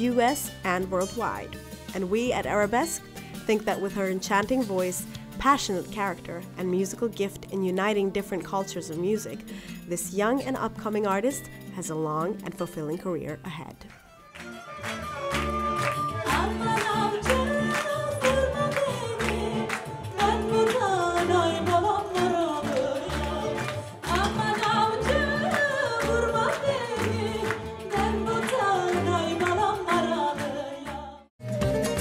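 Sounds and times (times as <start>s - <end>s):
woman singing folk song: 0.0s - 13.8s, 16.2s - 31.3s
band accompaniment: 14.3s - 18.2s.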